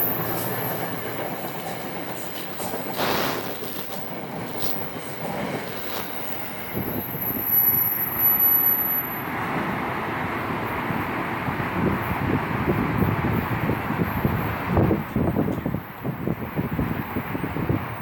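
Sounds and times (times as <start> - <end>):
high wheel squeal: 0.0 - 9.2
train rolling on rails: 0.0 - 18.0.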